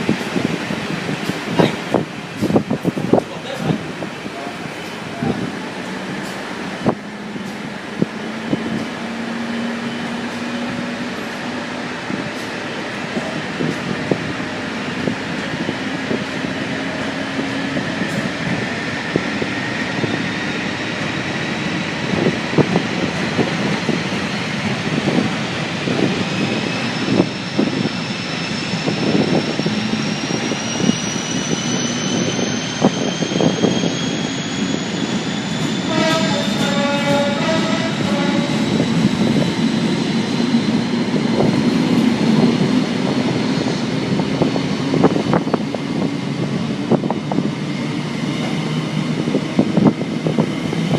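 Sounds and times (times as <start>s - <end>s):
train whine rising in pitch: 4.4s - 50.9s.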